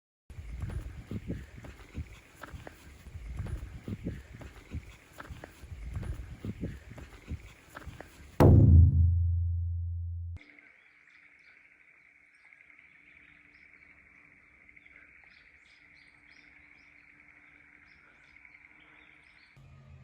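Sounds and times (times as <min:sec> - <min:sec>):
birds chirping: 0:00.3 - 0:08.4, 0:10.4 - 0:19.6
deep booming hit: 0:08.4 - 0:10.4.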